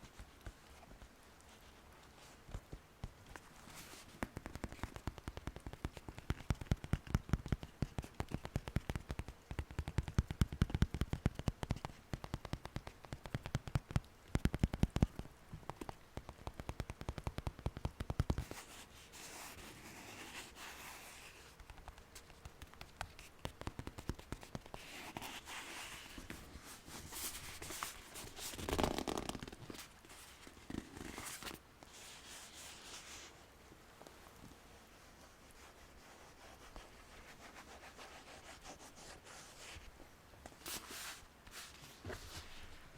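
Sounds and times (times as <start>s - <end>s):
soft rustling and scraping: 0.0s - 5.3s, 18.3s - 42.9s.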